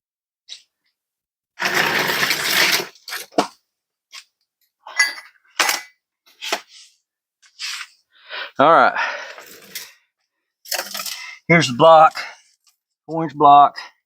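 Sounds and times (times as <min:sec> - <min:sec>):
metal parts scraping: 0:01.6 - 0:03.4, 0:09.3 - 0:10.0, 0:10.7 - 0:11.3.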